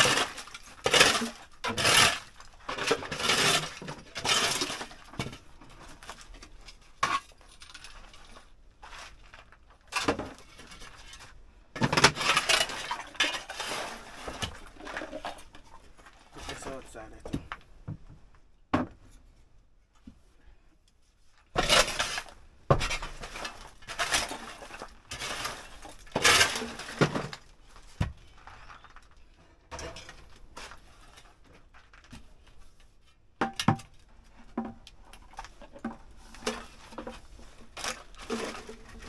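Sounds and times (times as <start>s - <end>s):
scraping and rustling: 0.0s - 17.4s, 21.1s - 33.0s, 34.2s - 39.0s
metal and glass objects clattering: 29.7s - 30.4s.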